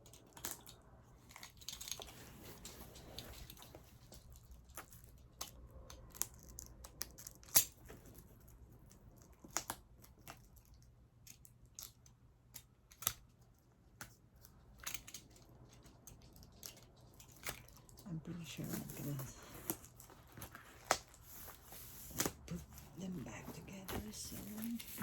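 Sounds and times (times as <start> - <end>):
cardboard package being opened: 18.6 - 25.0.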